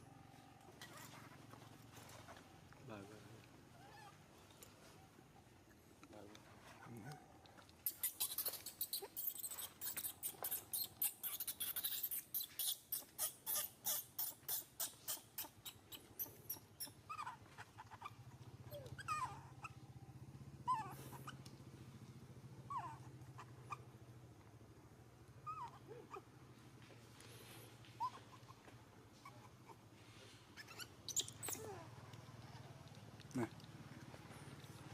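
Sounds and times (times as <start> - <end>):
monkey squeaking whimpers: 3.8 - 4.2, 7.8 - 19.9, 20.6 - 21.4, 22.7 - 23.8, 25.4 - 26.3, 28.0 - 28.6, 29.2 - 29.8, 30.6 - 31.9.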